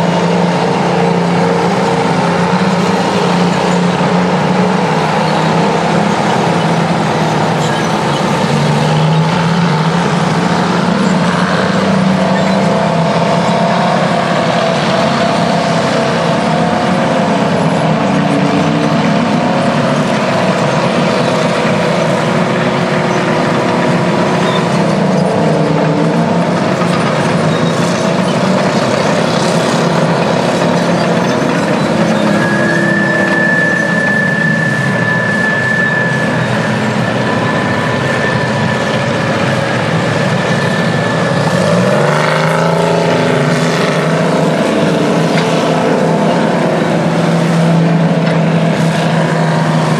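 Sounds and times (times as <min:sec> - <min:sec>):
bulldozer diesel engines working: 0:00.0 - 0:49.9
steady high whistle: 0:31.9 - 0:42.1.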